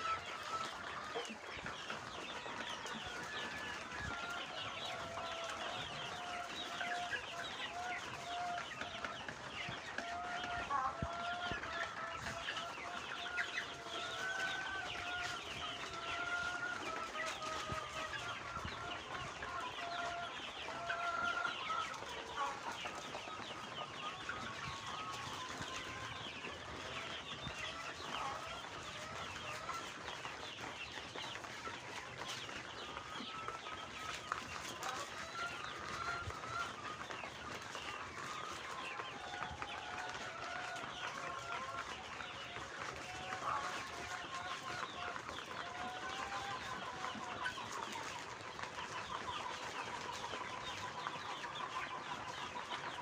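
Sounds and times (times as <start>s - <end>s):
chickens peeping and clucking: 0.0s - 53.0s
drawn-out chicken calls: 0.0s - 53.0s.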